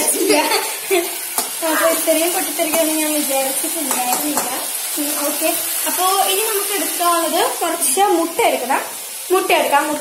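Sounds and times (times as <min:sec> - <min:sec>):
food sizzling in hot oil: 0:00.0 - 0:10.0
spoon clicking against pan: 0:02.7 - 0:03.0, 0:03.8 - 0:04.6.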